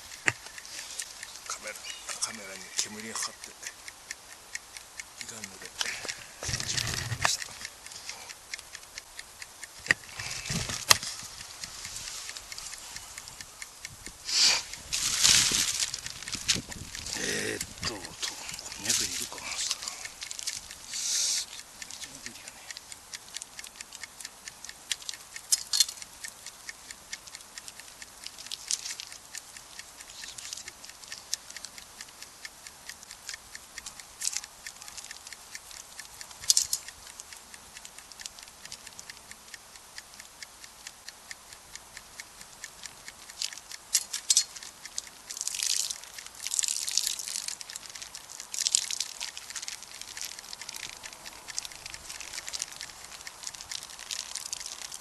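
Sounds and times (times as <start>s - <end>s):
campfire crackling: 0.0s - 41.0s, 42.1s - 55.0s
fire hissing: 0.2s - 2.4s, 9.8s - 21.6s.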